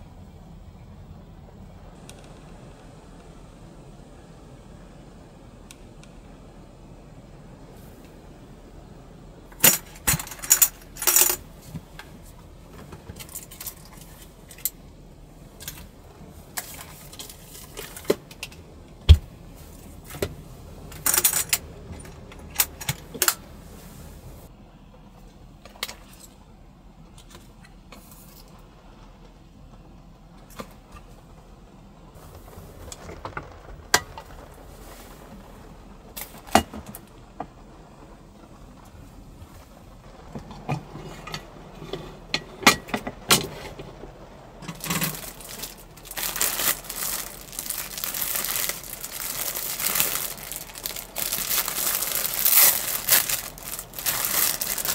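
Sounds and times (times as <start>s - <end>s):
low steady hum: 0.0s - 54.9s
small metal objects clinking: 9.6s - 11.4s, 44.7s - 54.9s.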